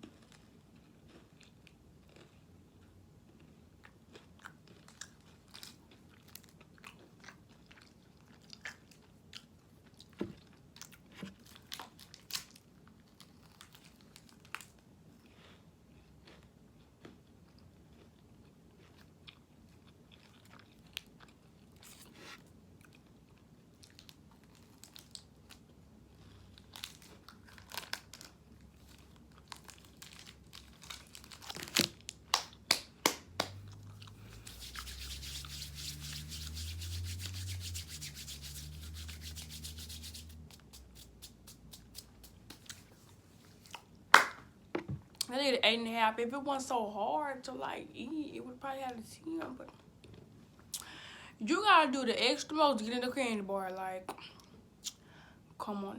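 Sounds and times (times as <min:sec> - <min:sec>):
wrapper crinkling: 0:26.8 - 0:32.2, 0:33.5 - 0:43.1.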